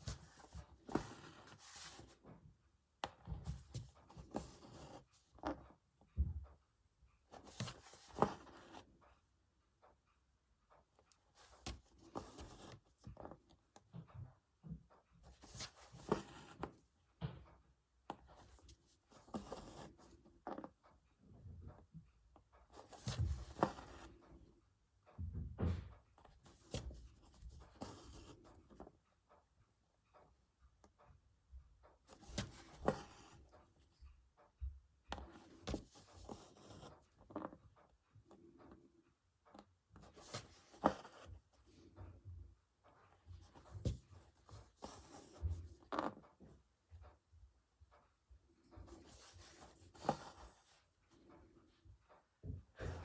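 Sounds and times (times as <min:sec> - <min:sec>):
needle and thread through fabric: 0:31.8 - 0:34.5, 0:39.4 - 0:42.0
hoop clicks and cloth rustles: 0:31.9 - 0:38.6, 0:39.4 - 0:47.0, 0:48.5 - 0:53.0.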